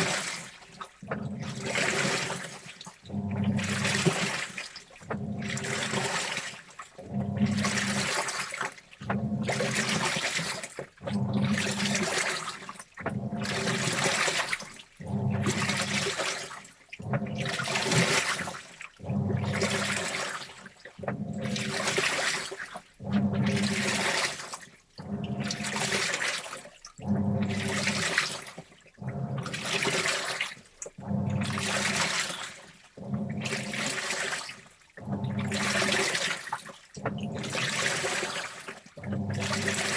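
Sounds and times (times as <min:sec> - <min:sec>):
water sloshing in washing machine: 0:00.0 - 0:39.9
low motor hum: 0:01.0 - 0:02.0, 0:03.0 - 0:04.2, 0:05.0 - 0:06.0, 0:07.0 - 0:08.0, 0:09.0 - 0:09.7, 0:11.0 - 0:12.0, 0:13.0 - 0:13.9, 0:15.0 - 0:16.0, 0:17.0 - 0:17.9, 0:19.0 - 0:20.1, 0:21.0 - 0:21.8, 0:23.0 - 0:24.0, 0:25.0 - 0:25.9, 0:27.0 - 0:28.1, 0:29.0 - 0:29.9, 0:31.0 - 0:32.2, 0:33.0 - 0:34.0, 0:35.0 - 0:36.1, 0:37.0 - 0:37.8, 0:39.0 - 0:39.9.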